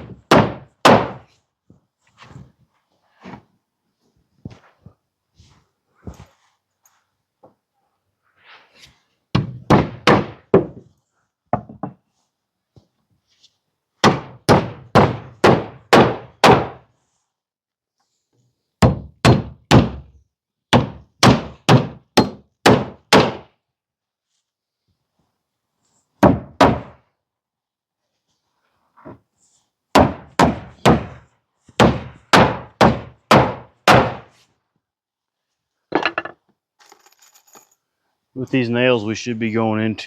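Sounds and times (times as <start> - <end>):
hammer driving nails into wood: 0.0 - 1.2, 9.3 - 10.8, 14.0 - 16.8, 18.8 - 20.1, 20.7 - 23.5, 26.2 - 27.0, 30.0 - 31.2, 31.8 - 34.3.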